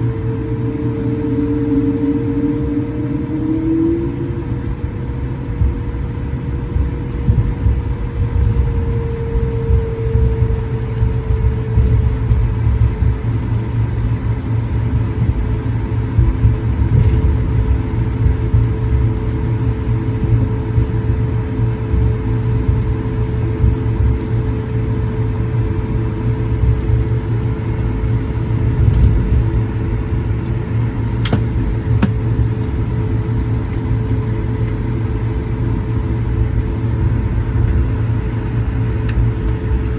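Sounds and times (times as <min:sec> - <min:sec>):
aircraft cabin rumble: 0:00.0 - 0:39.9
engine hum: 0:00.0 - 0:39.9.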